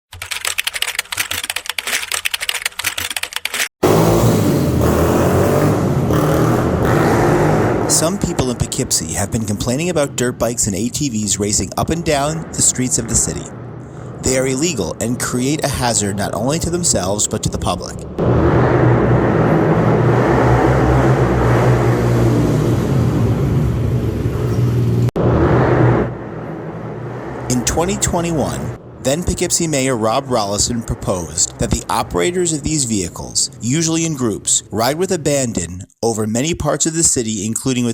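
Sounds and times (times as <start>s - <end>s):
rapid typing clicks: 0.1s - 3.7s
off-road vehicle engine running: 3.8s - 34.3s.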